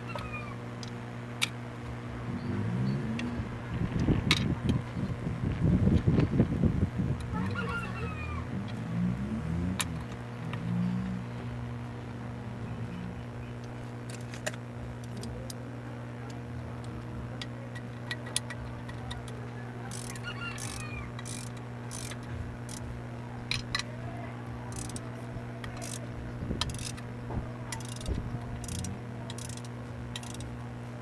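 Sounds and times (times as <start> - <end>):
steady low hum: 0.0 - 31.0
metallic clicks of hand tools: 19.9 - 22.9, 24.7 - 25.0, 25.8 - 26.0, 26.6 - 27.0, 27.7 - 30.5.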